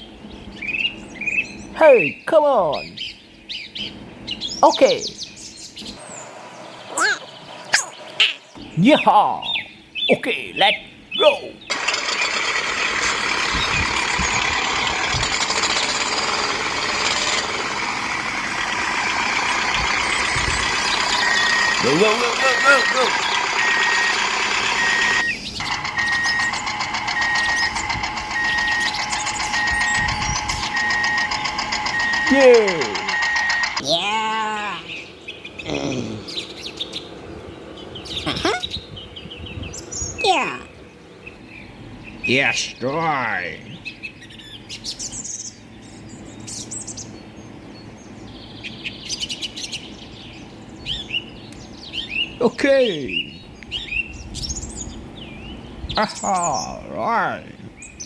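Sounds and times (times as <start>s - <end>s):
small birds chirping: 0.0s - 58.0s
steady low hum: 5.2s - 34.0s
toy tractor motor running: 11.7s - 33.8s
short electronic beeps: 21.0s - 33.8s.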